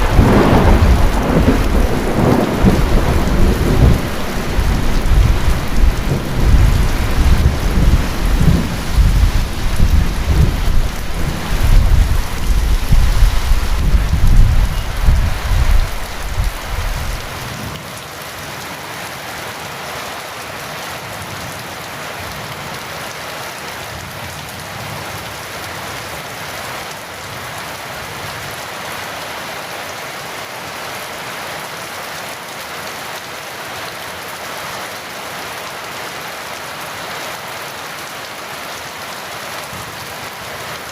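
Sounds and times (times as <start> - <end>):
rolling thunder rumble: 0.0 - 17.5
heavy rain falling: 0.0 - 40.9.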